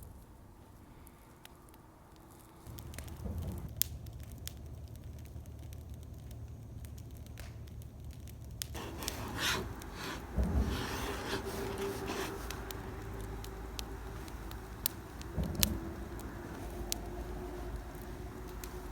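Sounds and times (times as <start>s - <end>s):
wood fire crackling and popping: 0.6s - 18.9s
rustling and scraping: 8.8s - 18.9s.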